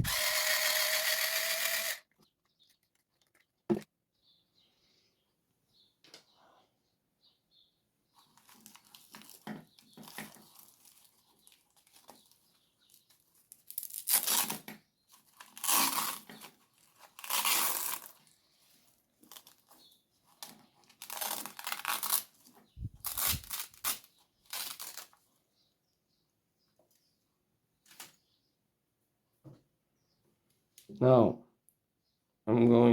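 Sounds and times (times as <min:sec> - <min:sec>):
scraping and rustling handling noises: 0:08.2 - 0:25.3.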